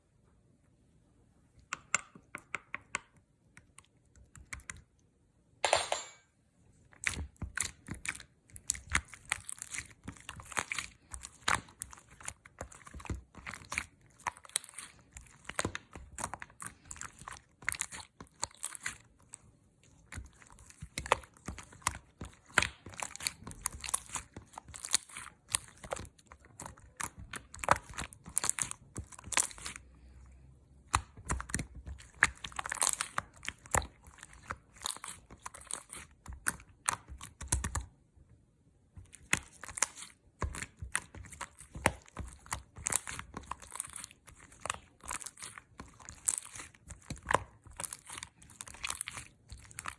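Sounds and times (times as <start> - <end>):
slime popping and crackling: 7.0 - 19.2, 20.0 - 29.8, 30.8 - 37.8, 39.1 - 49.9.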